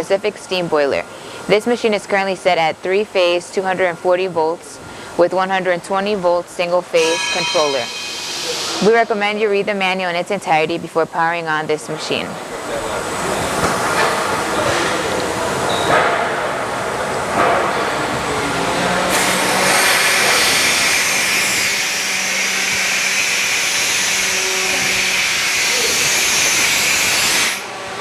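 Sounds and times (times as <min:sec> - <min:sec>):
uneven machine noise: 0:01.0 - 0:28.0
steam hissing: 0:07.0 - 0:10.0, 0:18.0 - 0:28.0.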